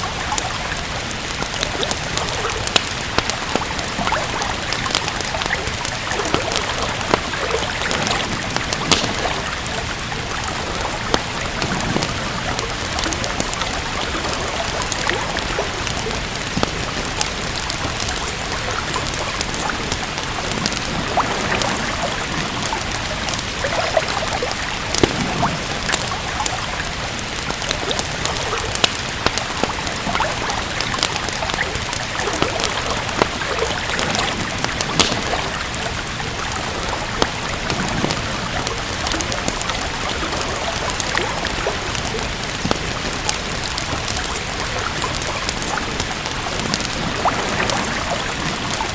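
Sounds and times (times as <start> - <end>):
steady rain hiss: 0.0 - 48.9
wood fire crackling: 0.0 - 48.9.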